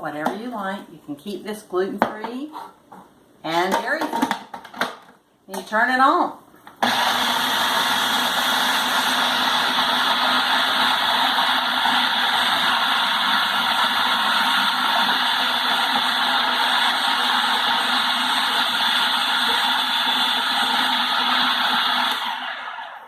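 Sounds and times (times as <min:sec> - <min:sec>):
electric blender running: 0:06.8 - 0:23.0.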